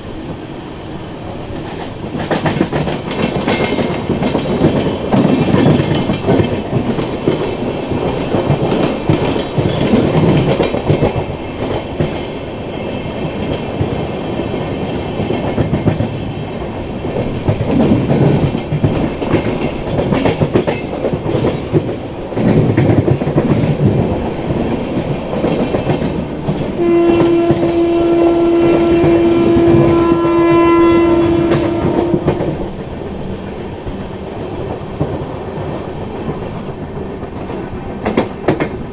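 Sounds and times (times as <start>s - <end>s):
train wheels clattering over joints: 1.6s - 12.4s, 17.0s - 27.8s
locomotive horn blast: 26.8s - 32.5s.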